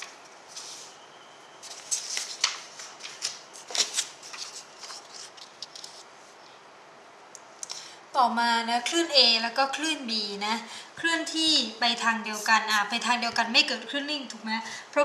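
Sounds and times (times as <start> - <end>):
scratchy rustling strokes: 0.4 - 1.0, 1.6 - 6.4.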